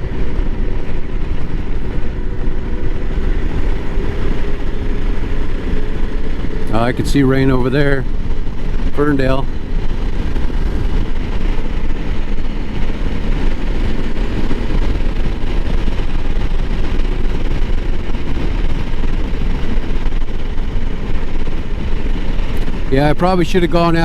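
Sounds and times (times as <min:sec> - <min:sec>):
motorcycle engine running: 0:00.0 - 0:24.0
wind noise on microphone: 0:00.0 - 0:24.0.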